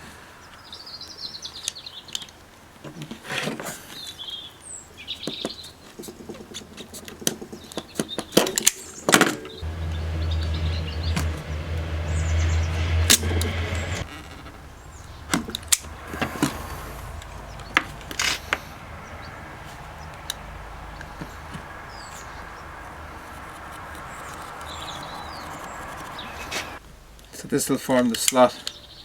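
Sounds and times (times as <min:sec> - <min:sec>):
birds chirping faintly: 0:09.6 - 0:26.8
low machine hum: 0:09.6 - 0:26.8.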